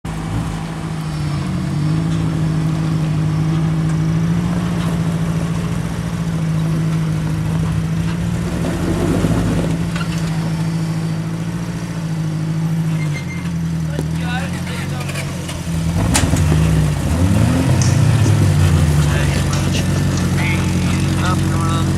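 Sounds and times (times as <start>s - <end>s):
vehicle engine running under load: 0.0s - 21.9s
rough grinding noise: 6.6s - 11.1s, 14.6s - 21.9s.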